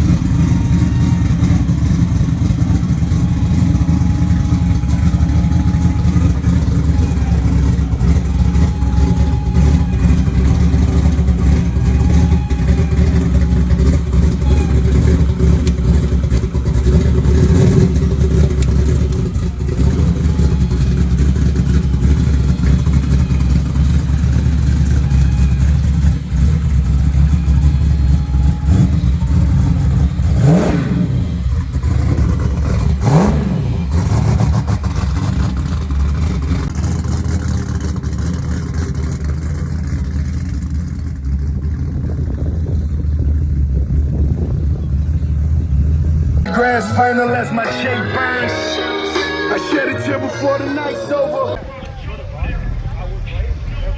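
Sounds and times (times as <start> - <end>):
engine revving sharply: 0.0 - 40.8
car engines rumbling: 0.0 - 53.9.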